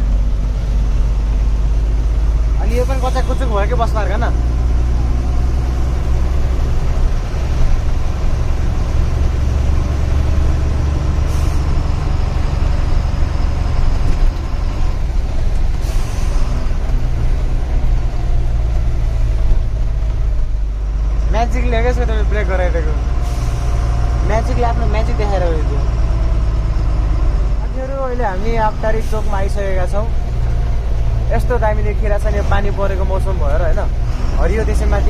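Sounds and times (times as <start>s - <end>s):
truck diesel engine running: 0.0s - 35.0s
air brake hisses: 15.8s - 16.4s.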